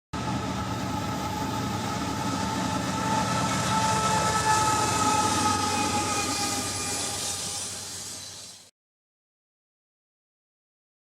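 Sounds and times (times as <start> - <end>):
freight train rumbling: 0.1 - 8.7
high squealing tones: 1.0 - 8.7.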